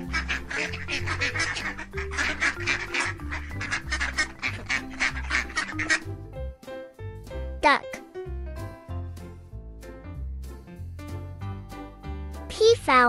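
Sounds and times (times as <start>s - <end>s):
ducks quacking: 0.0s - 6.2s
light background music: 0.0s - 13.0s.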